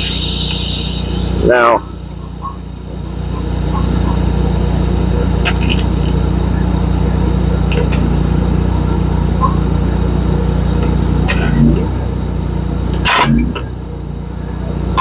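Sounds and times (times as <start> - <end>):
loud burst of hissing: 0.0 - 1.7
low engine drone: 0.0 - 15.0.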